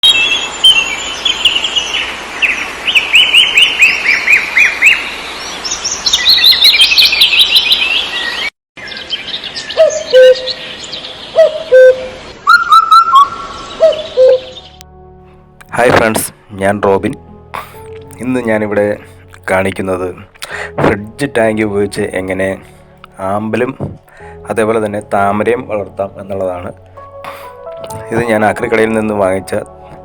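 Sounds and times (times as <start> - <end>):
songbirds singing: 0.0 - 14.8.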